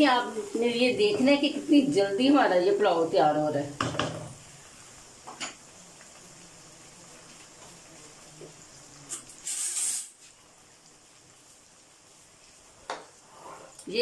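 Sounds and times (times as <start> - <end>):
chicken sizzling in oil: 0.0 - 14.0
short loud hiss: 9.0 - 10.4.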